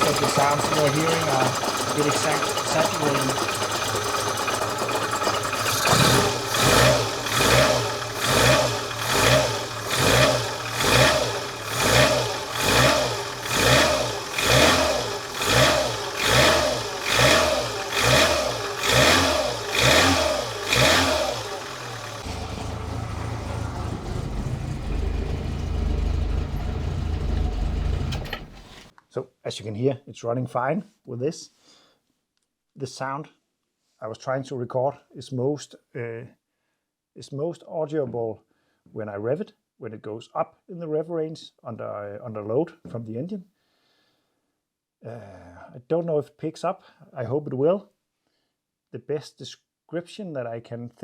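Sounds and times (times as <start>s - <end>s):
car engine idling: 0.0s - 28.9s
car engine revving in blips: 0.0s - 28.9s.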